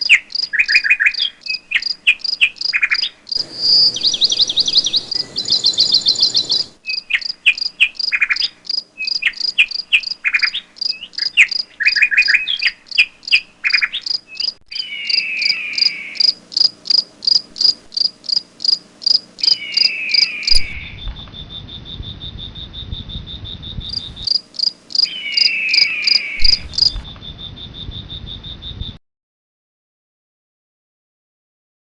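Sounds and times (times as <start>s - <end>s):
bird calls: 0.0s - 29.0s
insect chirping: 0.0s - 29.0s
descending bird trills: 0.5s - 16.4s, 19.4s - 24.3s, 25.0s - 28.5s.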